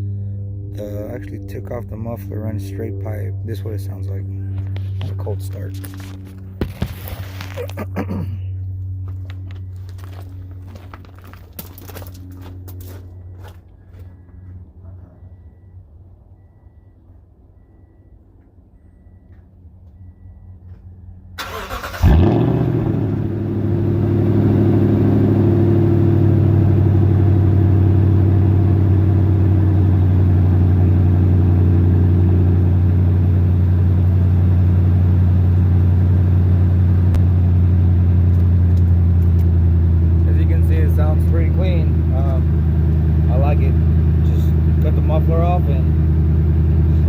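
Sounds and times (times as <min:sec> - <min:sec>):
truck engine starting and idling: 0:07.4 - 0:47.0
engine starter cranking: 0:21.4 - 0:22.4.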